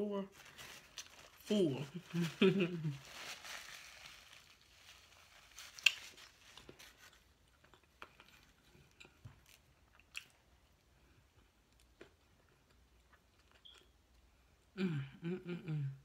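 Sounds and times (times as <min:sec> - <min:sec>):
chewing food: 0:05.7 - 0:14.7.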